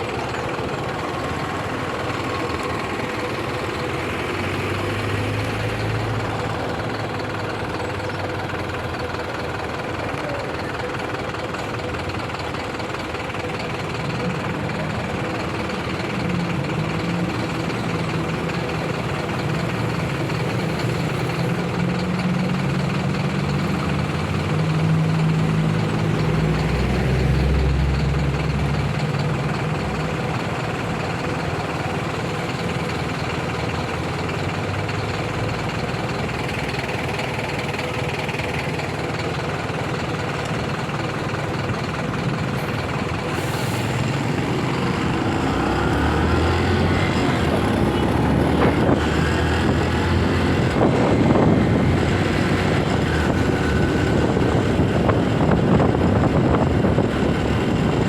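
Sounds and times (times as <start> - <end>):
motorcycle engine running: 0.0 - 43.4
wind and road noise: 15.5 - 58.0.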